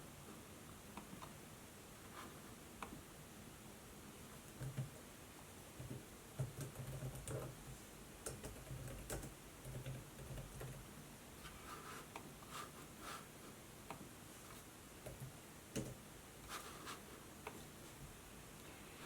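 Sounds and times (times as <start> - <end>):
laptop keystrokes: 8.2 - 10.8.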